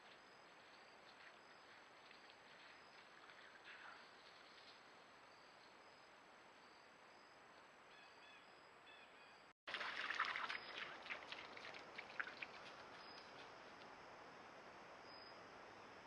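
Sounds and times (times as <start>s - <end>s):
crackling rustle: 0.0s - 5.8s
soft bird chirps: 5.4s - 9.5s, 12.5s - 13.5s
faint steady hiss: 9.8s - 16.0s.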